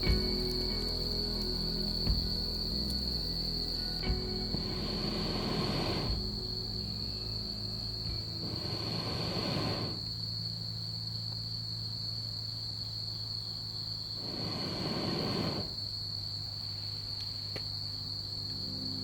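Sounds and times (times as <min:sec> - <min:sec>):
low steady hum: 0:00.0 - 0:13.3
high insect trill: 0:00.0 - 0:19.0.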